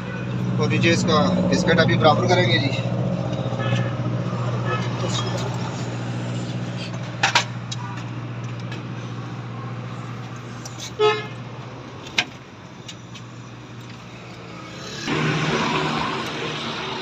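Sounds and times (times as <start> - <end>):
vehicle horn toot: 3.5 - 5.3, 11.0 - 11.4.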